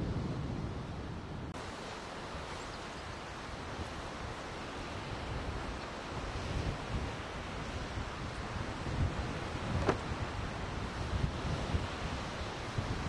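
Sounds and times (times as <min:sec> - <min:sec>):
wind rumbling on microphone: 0:00.0 - 0:13.0
steady rushing hiss: 0:01.6 - 0:10.8.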